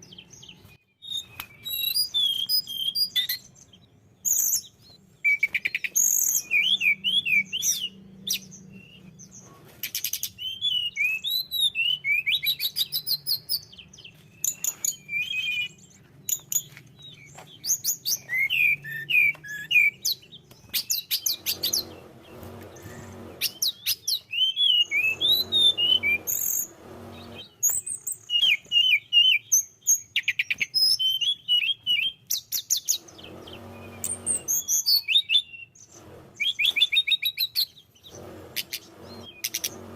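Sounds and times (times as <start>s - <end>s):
bird singing chirps and trills: 0.0s - 39.9s
low rustling noise: 24.9s - 27.6s.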